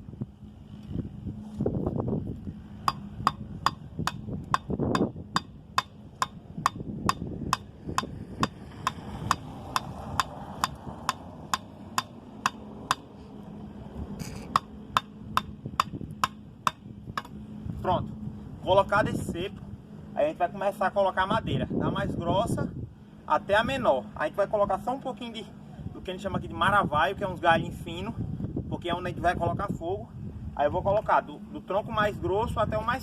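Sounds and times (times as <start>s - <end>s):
hammering wooden stake: 2.8s - 13.1s, 14.2s - 17.4s.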